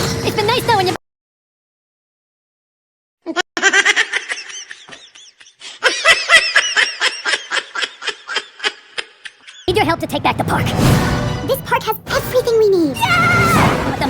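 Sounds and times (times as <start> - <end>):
high-pitched frantic laugh: 3.3 - 9.7.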